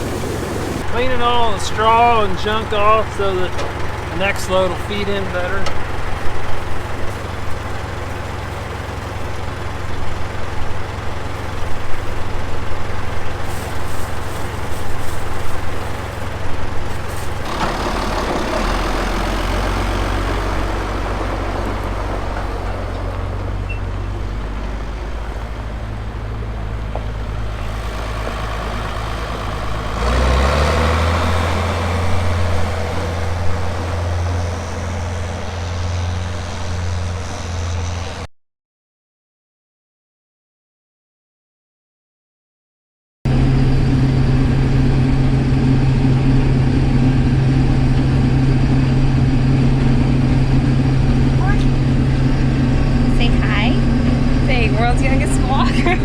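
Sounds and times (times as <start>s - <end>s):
diesel engine running: 0.0s - 38.3s, 43.3s - 56.0s.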